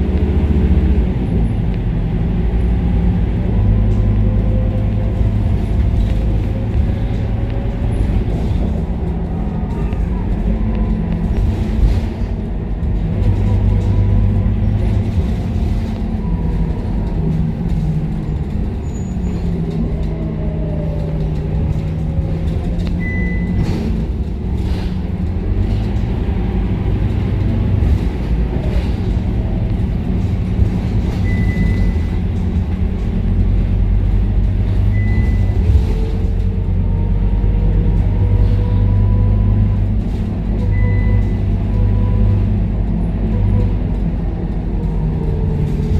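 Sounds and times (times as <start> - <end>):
bus diesel engine: 0.0 - 45.9.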